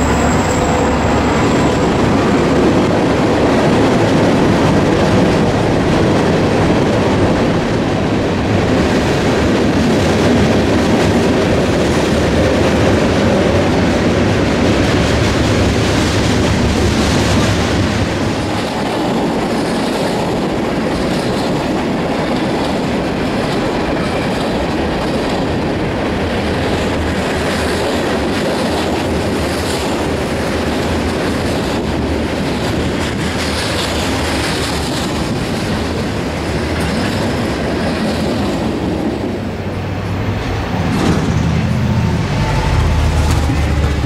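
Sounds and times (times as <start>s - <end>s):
road vehicle engine: 0.0s - 4.2s, 39.5s - 44.0s
freight cars rumbling past: 0.0s - 8.5s, 37.2s - 44.0s.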